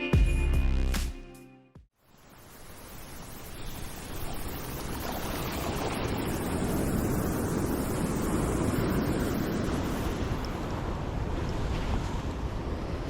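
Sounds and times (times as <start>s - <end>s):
sea noise: 2.0s - 13.0s
wind rushing on microphone: 4.6s - 13.0s.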